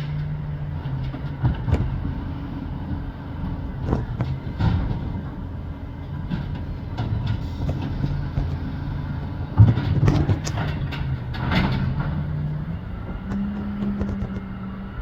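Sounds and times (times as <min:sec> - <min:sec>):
garbage truck engine drone: 0:00.0 - 0:15.0
clattering and knocking: 0:03.4 - 0:14.6.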